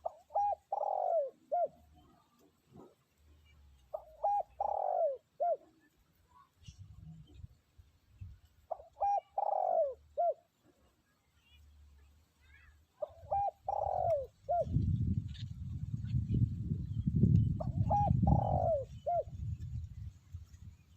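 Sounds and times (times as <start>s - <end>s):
dove cooing: 0.0s - 3.0s, 3.9s - 5.9s, 8.7s - 10.6s, 13.0s - 14.8s, 17.6s - 19.6s.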